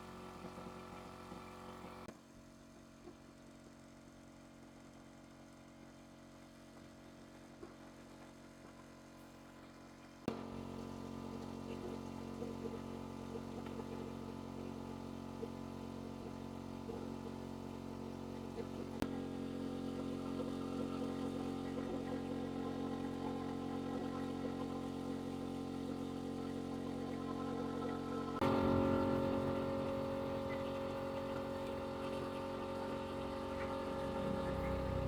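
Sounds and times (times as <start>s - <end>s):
small motorcycle engine idling: 10.3s - 35.0s.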